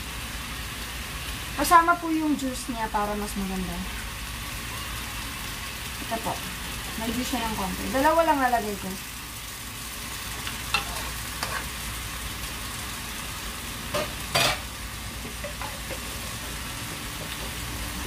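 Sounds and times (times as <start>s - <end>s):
zucchini sizzling in a pan: 0.0s - 18.0s.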